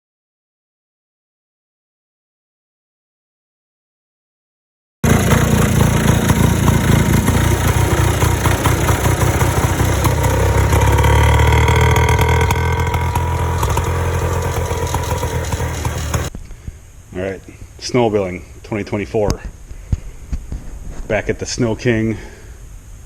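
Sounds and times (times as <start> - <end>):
two-stroke engine running: 5.0 - 16.3.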